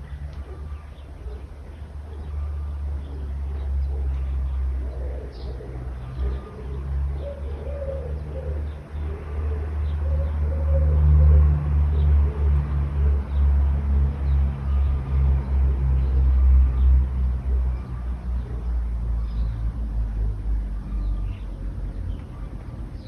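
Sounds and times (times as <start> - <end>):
small birds chirping: 0.0 - 11.0, 11.8 - 23.0
dove cooing: 0.0 - 11.6
road traffic rumble: 0.0 - 23.0.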